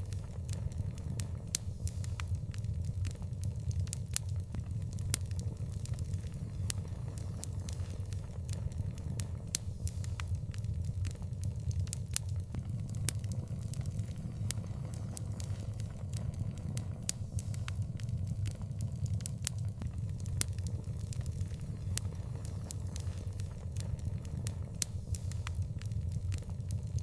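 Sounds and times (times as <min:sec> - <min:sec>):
fire crackling and popping: 0:12.5 - 0:20.2
low rumble of flames: 0:12.5 - 0:20.2.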